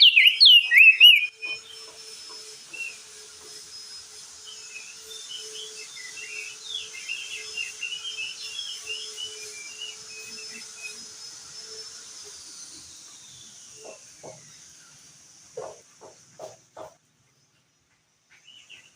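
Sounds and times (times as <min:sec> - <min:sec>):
bird twittering chirps: 0:00.0 - 0:02.0, 0:04.4 - 0:11.0, 0:18.3 - 0:18.9
thin high whistle tone: 0:00.0 - 0:12.0.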